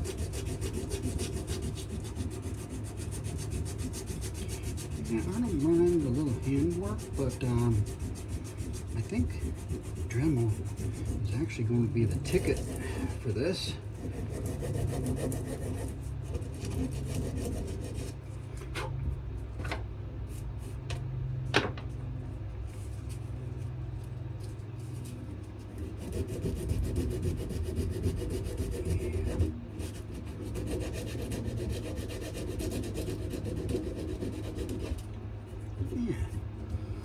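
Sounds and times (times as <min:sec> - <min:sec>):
rough sanding on wood: 0:00.0 - 0:18.2, 0:24.7 - 0:36.5.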